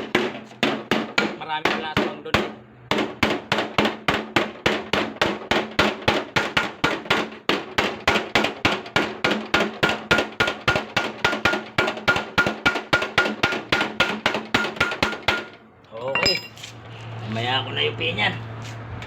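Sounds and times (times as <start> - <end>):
hammer beating sheet metal: 0.0 - 15.6.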